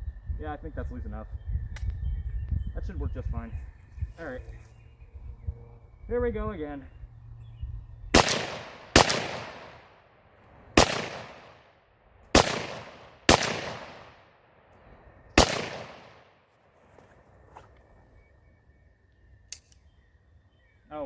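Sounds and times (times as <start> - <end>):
rifle shots echoing: 8.1 - 14.7, 15.4 - 16.4.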